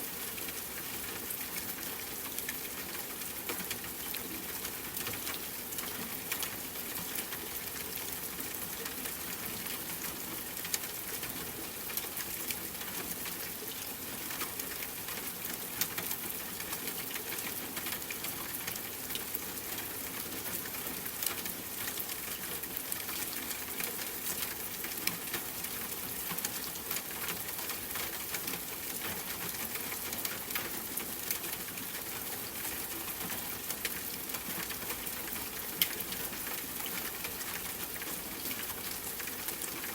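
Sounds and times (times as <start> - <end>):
steady rain with ticking drops: 0.0 - 39.9.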